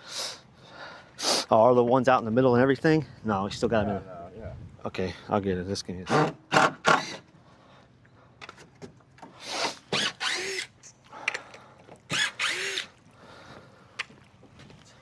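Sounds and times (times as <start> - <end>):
power drill driving screws: 6.1 - 7.2, 9.4 - 10.8, 12.1 - 12.9.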